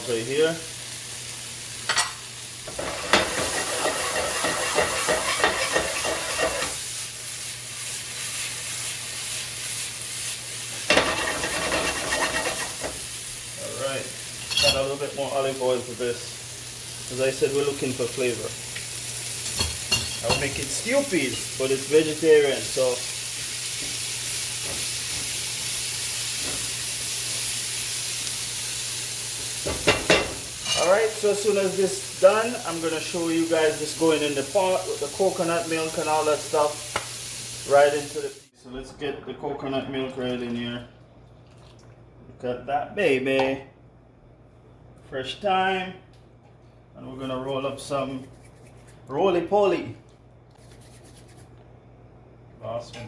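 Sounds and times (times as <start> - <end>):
vegetables sizzling in oil: 0.0 - 38.6
spoon stirring and scraping pan: 1.9 - 7.0, 10.8 - 13.0.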